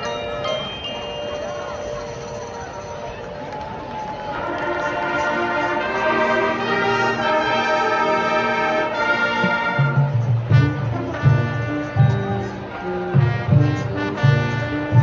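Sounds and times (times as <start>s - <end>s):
marching band brass chords: 4.3s - 15.0s
punchy low brass notes: 4.9s - 15.0s.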